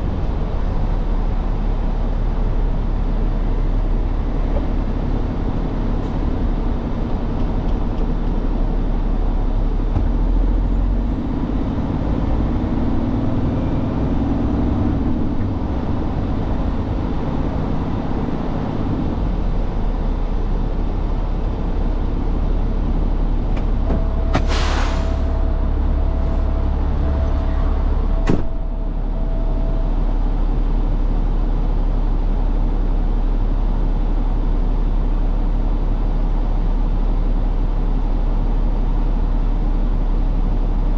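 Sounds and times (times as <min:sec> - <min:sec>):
truck engine rumbling: 0:00.0 - 0:35.9
hiss of air: 0:24.4 - 0:25.4.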